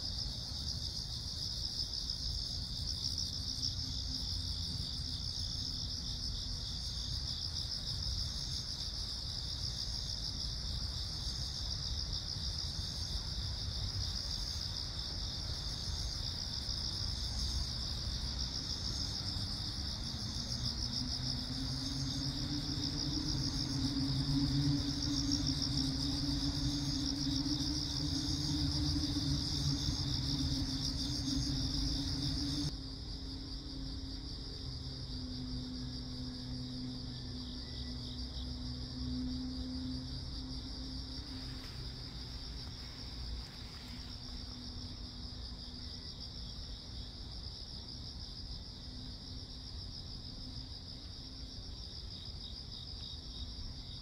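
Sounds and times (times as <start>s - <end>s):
crickets chirring: 0.0s - 54.0s
low background rumble: 17.0s - 45.3s
low hum: 19.8s - 45.0s.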